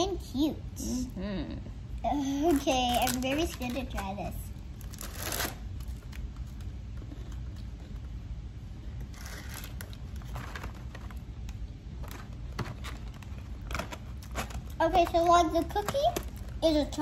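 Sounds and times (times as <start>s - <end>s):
low steady hum: 0.0s - 17.0s
cookie being chewed: 5.8s - 8.3s.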